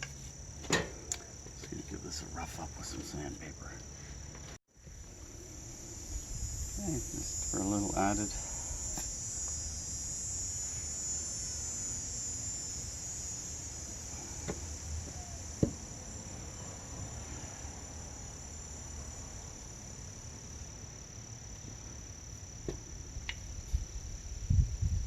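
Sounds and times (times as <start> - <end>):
high-pitched drone: 5.2 - 17.8.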